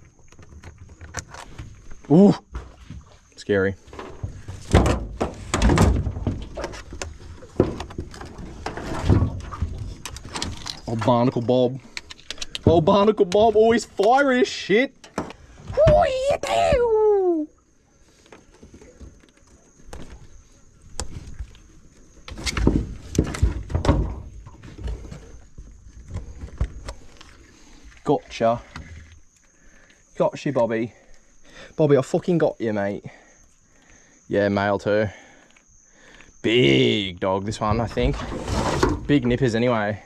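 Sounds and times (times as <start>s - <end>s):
crab pot thumping and rattling: 3.9s - 6.8s
loud thuds and scrapes: 3.9s - 11.0s, 37.6s - 39.5s.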